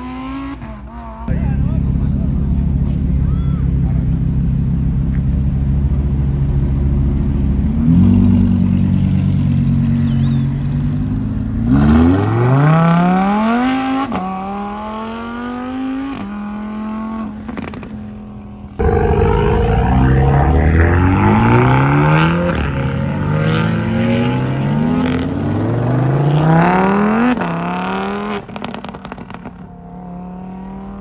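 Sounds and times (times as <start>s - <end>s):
car engine accelerating: 1.3s - 12.2s, 18.8s - 27.3s.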